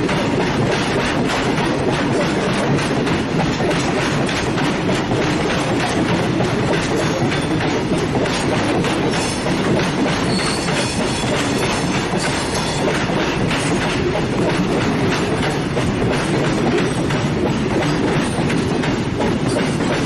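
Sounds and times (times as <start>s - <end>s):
clickety-clack over rail joints: 0.0s - 20.0s
train wheels rumbling: 0.0s - 20.0s
faint wheel squeal: 10.3s - 10.7s.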